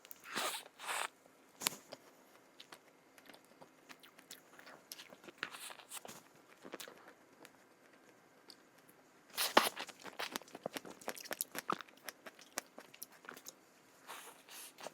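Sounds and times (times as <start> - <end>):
person crunching snack: 9.4 - 13.5.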